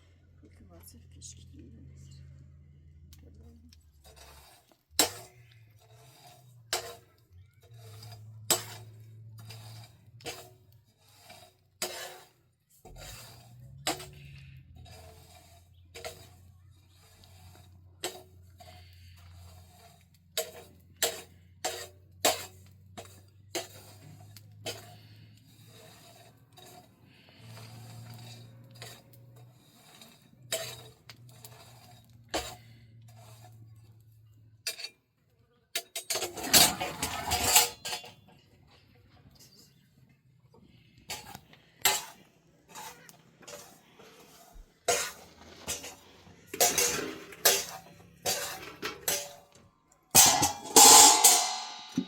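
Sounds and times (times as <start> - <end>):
utensils knocking against cookware: 44.9 - 52.0.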